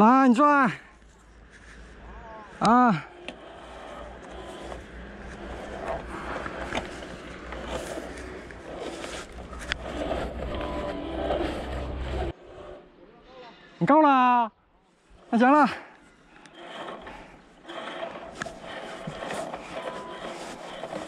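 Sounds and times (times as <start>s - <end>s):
cable scraping off reel: 2.6s - 12.9s, 15.1s - 21.0s.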